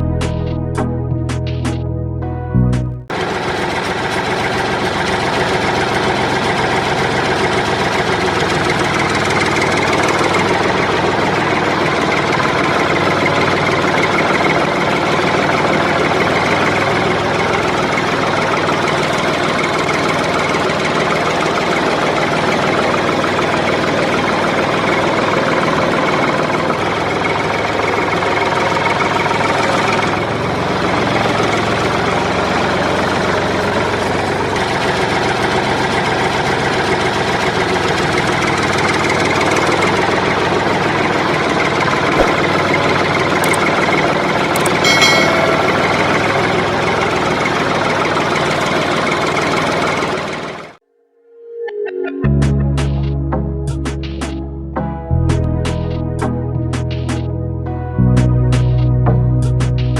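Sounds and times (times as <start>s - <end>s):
tractor engine idling with knocking: 3.1s - 43.7s.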